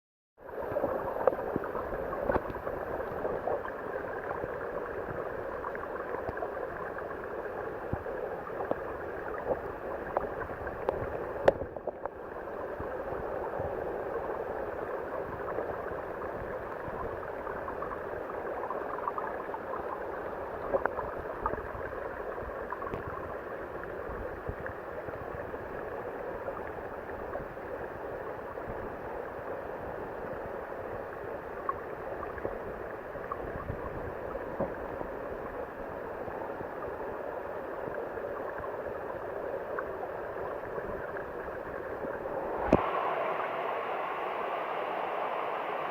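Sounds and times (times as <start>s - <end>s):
small clicks or splashes: 1.2s - 3.6s
waterfall rushing: 42.3s - 45.9s.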